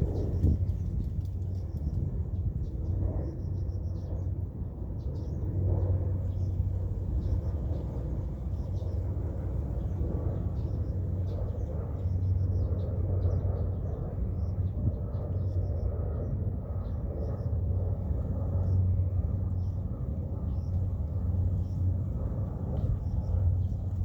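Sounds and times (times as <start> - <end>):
low rumble: 0.0 - 3.8.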